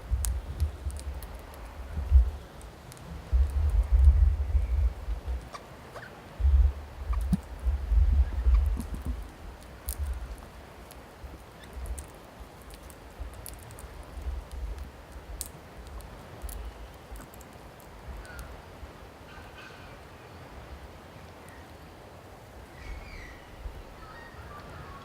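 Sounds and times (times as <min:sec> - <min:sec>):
birds pecking clicks and taps: 0:00.1 - 0:04.0, 0:08.4 - 0:18.5
low rumble: 0:03.3 - 0:05.4
birds chirping: 0:22.7 - 0:25.0.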